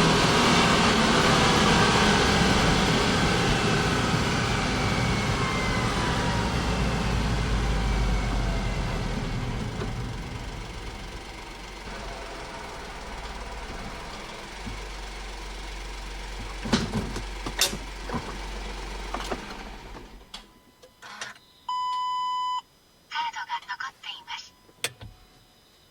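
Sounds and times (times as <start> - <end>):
car engine running: 0.0 - 20.3
short electronic beep: 21.4 - 22.6.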